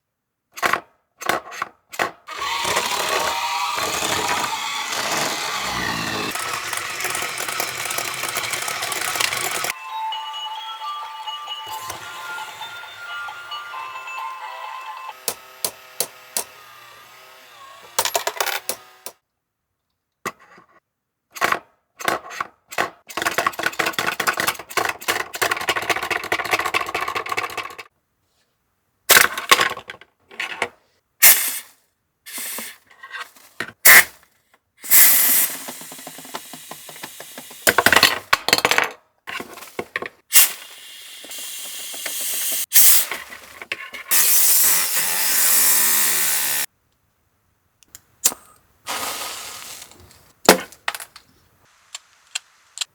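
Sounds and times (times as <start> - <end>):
toy motor and gears rattling: 2.3 - 9.8, 34.9 - 38.0, 40.3 - 46.7.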